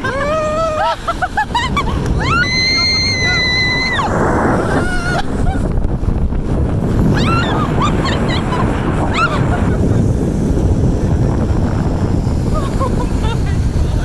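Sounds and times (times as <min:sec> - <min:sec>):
woman shrieking and yelling: 0:00.0 - 0:04.1, 0:07.1 - 0:09.7
wind rushing over microphone: 0:00.0 - 0:14.0.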